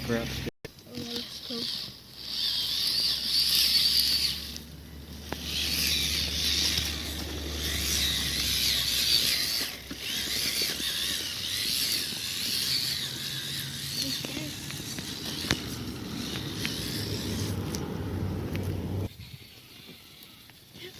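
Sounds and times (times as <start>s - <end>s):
small electric motors whining: 0.0s - 20.9s.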